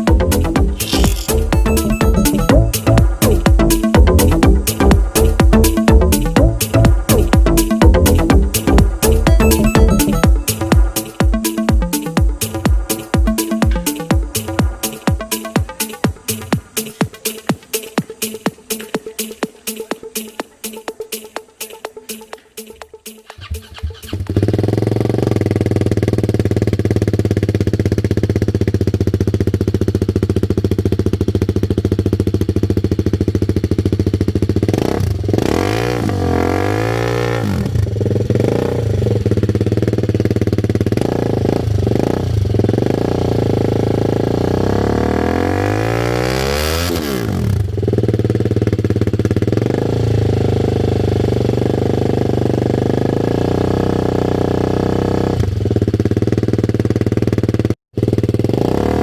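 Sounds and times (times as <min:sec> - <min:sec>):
motorcycle engine idling and revving: 0:00.0 - 0:59.0.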